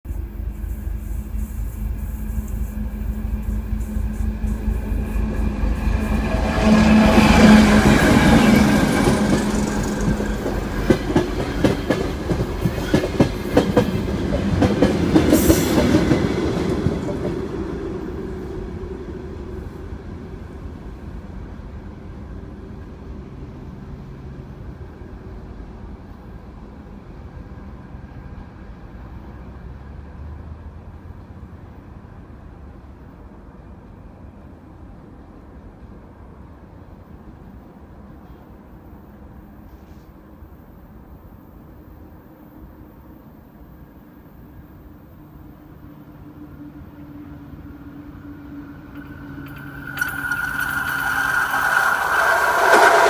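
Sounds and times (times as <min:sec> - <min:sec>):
train wheels clattering over rails: 0:01.4 - 0:17.5.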